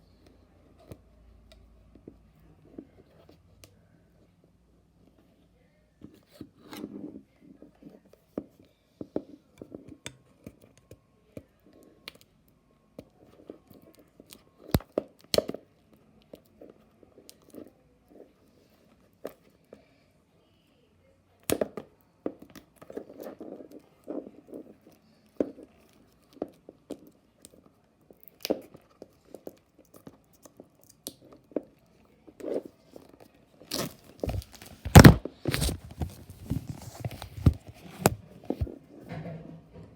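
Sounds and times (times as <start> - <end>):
packaging tearing and crinkling: 33.7 - 38.2
packaging clicks and taps: 34.2 - 38.7.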